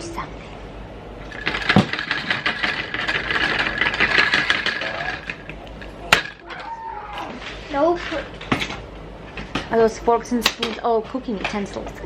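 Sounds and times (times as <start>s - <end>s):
metal kitchen utensils rattling: 1.3s - 12.0s.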